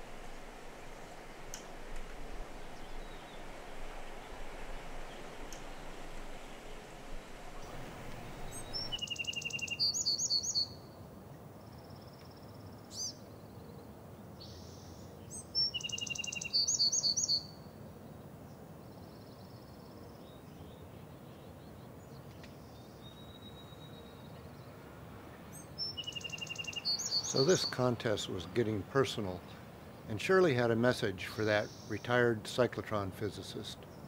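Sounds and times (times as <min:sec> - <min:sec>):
songbird singing: 0:00.0 - 0:34.0
faint whistled bird calls: 0:07.6 - 0:10.9, 0:14.4 - 0:17.7, 0:22.5 - 0:24.7, 0:25.5 - 0:27.9, 0:31.5 - 0:32.2.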